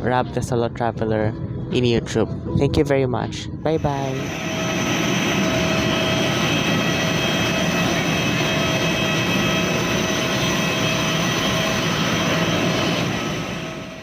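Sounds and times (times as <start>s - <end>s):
jet engines idling in cabin: 3.7s - 14.0s.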